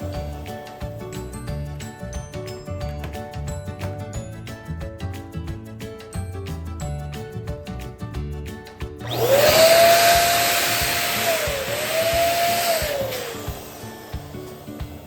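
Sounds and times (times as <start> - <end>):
background music: 0.0 - 15.0
electric balloon pump whine: 9.0 - 15.0.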